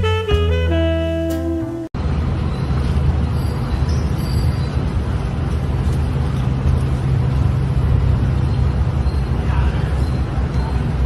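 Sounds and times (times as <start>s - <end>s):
music: 0.0s - 1.9s.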